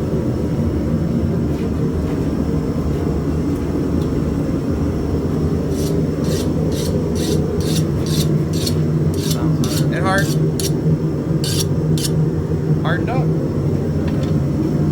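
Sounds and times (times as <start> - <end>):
file scraping steel blade: 5.7 - 10.8, 11.4 - 12.2.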